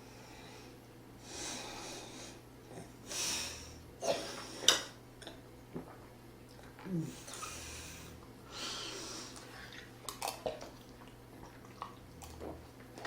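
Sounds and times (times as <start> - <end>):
person breathing: 0.0 - 2.4, 3.0 - 4.6, 6.9 - 9.8.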